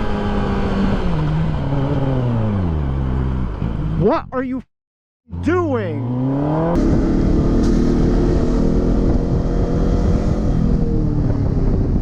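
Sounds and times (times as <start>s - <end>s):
road and wind rumble: 0.0s - 4.7s, 5.3s - 12.0s
motorcycle engine running: 6.5s - 12.0s.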